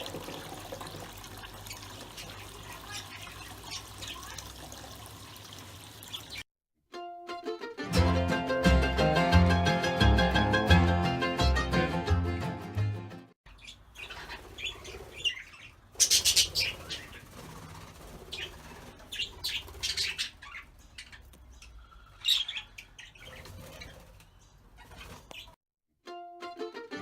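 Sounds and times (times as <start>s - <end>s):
budgerigars chirping: 13.5s - 17.3s, 18.3s - 24.0s
wings flapping: 16.0s - 20.3s, 23.2s - 25.6s.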